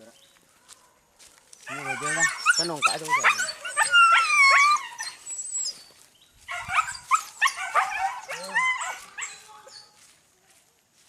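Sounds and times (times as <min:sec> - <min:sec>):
dogs yelping: 0:01.6 - 0:10.0.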